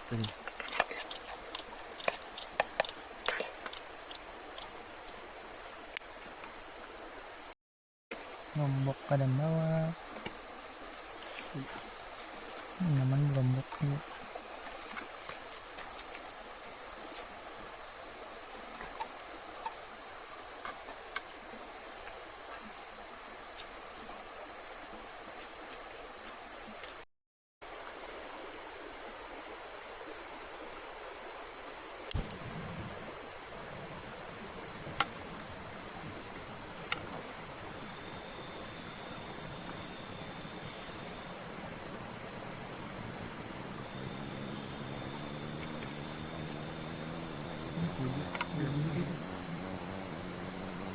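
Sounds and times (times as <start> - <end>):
insects chorus: 0.0 - 27.0, 27.6 - 50.9
faint clicks: 48.3 - 48.6.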